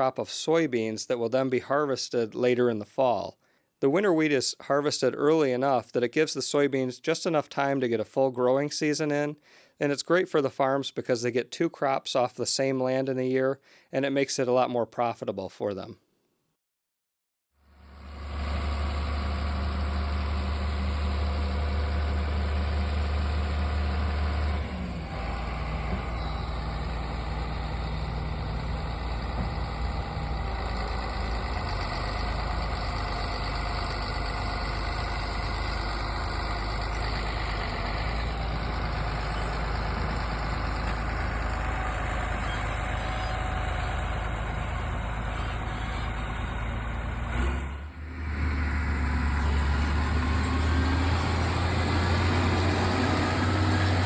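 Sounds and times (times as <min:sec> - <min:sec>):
diesel engine drone: 0:17.6 - 0:54.0.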